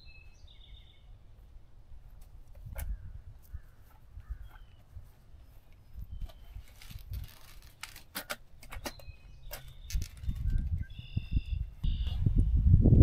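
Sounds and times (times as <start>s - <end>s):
faint bird chirps: 0.0s - 1.2s, 2.8s - 6.8s, 8.8s - 12.2s.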